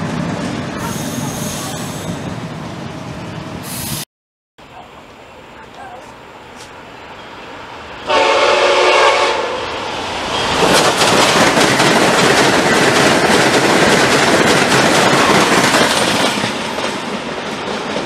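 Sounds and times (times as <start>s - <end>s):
train passing with rush of air: 0.0s - 4.0s, 4.7s - 18.0s
train horn blast: 8.0s - 9.7s.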